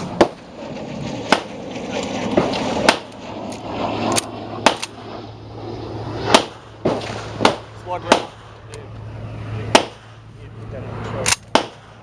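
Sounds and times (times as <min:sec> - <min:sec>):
shotgun shots: 0:00.0 - 0:05.2, 0:06.1 - 0:08.6, 0:09.6 - 0:10.2, 0:11.3 - 0:12.0.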